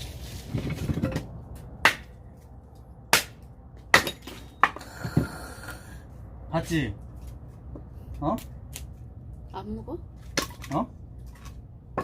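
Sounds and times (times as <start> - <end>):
axe splitting firewood: 0.5 - 5.4.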